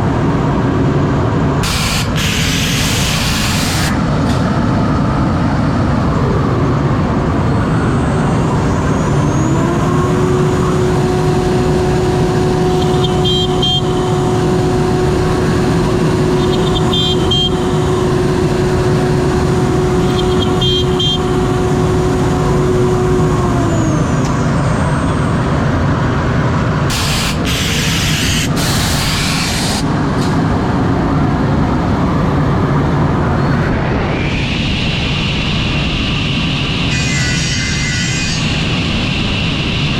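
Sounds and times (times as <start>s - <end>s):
held machine tone: 7.4s - 23.8s
cnc router milling wood: 7.4s - 25.9s, 36.7s - 39.6s.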